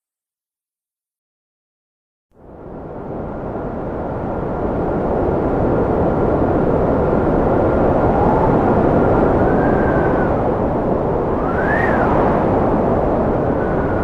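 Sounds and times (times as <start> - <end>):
strong wind rushing: 2.4 - 14.0
thin wind whistle: 7.6 - 14.0.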